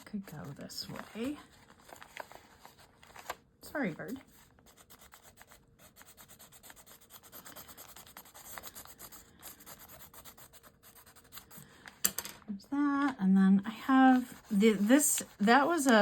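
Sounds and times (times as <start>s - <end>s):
pencil scratching on paper: 4.3s - 11.6s, 13.8s - 16.0s.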